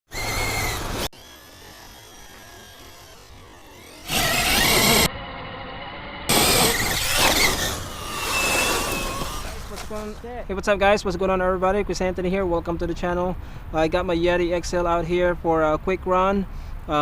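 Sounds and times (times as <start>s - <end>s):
electric motor whining: 0.1s - 10.3s.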